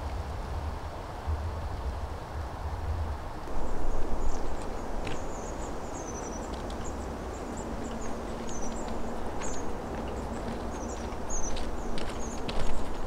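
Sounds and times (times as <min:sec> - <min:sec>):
songbirds chirping: 0:03.5 - 0:13.0.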